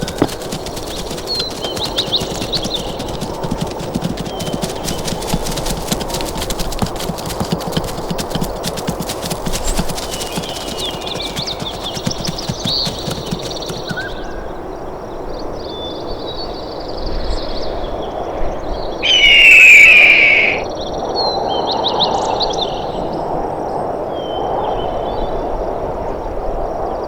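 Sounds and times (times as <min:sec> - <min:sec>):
birds chirping and trilling: 0:00.0 - 0:14.2, 0:19.0 - 0:20.7
loud harsh animal call: 0:19.0 - 0:20.7.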